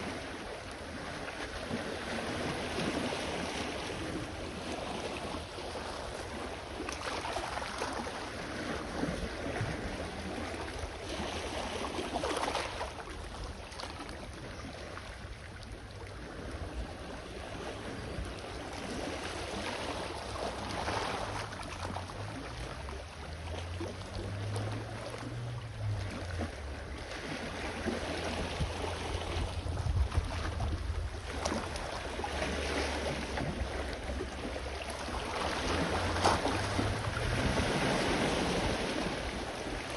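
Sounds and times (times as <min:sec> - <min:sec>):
small waves washing ashore: 0:00.0 - 0:39.9
wind rumble on microphone: 0:00.0 - 0:39.9.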